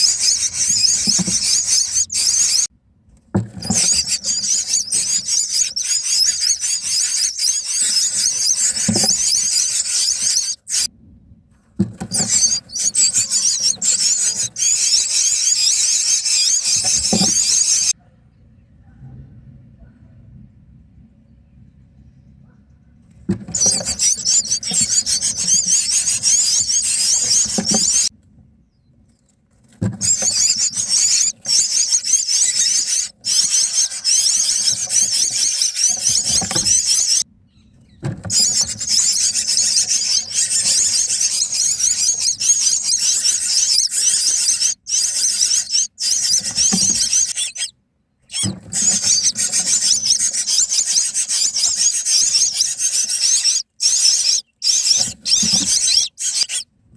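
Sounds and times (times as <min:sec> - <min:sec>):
nestlings begging calls: 0:00.0 - 0:02.7, 0:03.6 - 0:10.9, 0:12.1 - 0:17.9, 0:23.5 - 0:28.1, 0:30.0 - 0:37.2, 0:38.3 - 0:47.7, 0:48.3 - 0:56.6.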